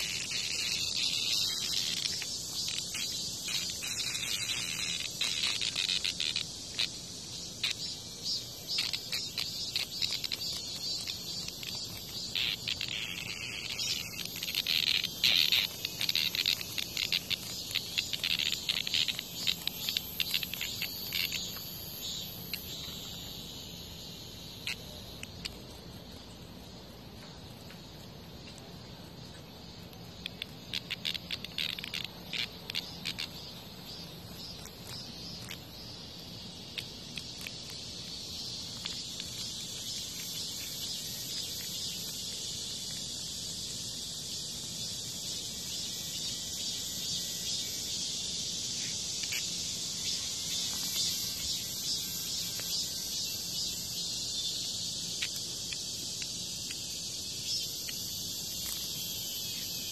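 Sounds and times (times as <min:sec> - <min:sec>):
cicada distress buzzes: 0:00.0 - 0:59.9.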